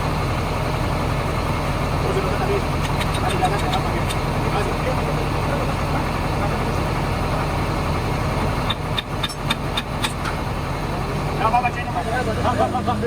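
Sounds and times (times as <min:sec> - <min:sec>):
low engine hum: 0:00.0 - 0:13.0
sharp clicks and taps: 0:02.8 - 0:04.2.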